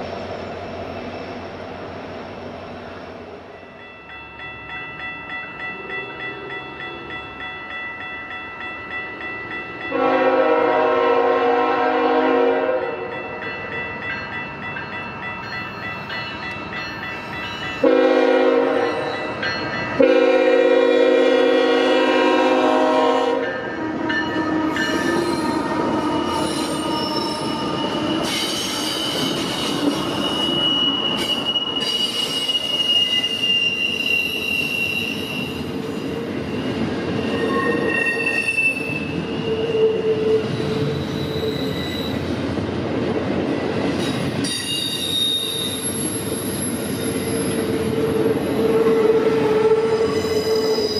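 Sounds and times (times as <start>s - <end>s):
train cars rumbling: 0.0s - 50.9s
locomotive horn blasts: 9.9s - 13.1s, 17.8s - 19.0s, 20.0s - 23.5s, 48.6s - 50.5s
train wheels squealing: 24.2s - 42.3s, 44.0s - 50.9s.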